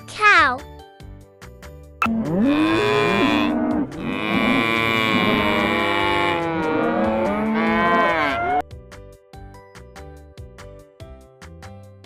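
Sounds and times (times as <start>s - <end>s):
cow mooing: 2.0s - 8.6s.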